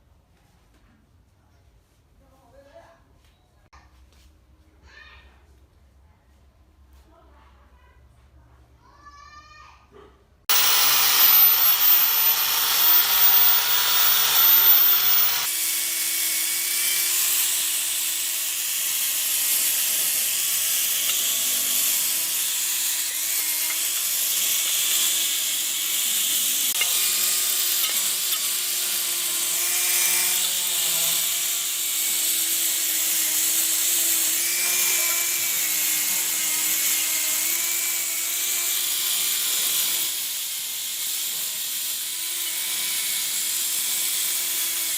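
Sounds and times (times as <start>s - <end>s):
power tool grinding metal: 10.5s - 44.9s.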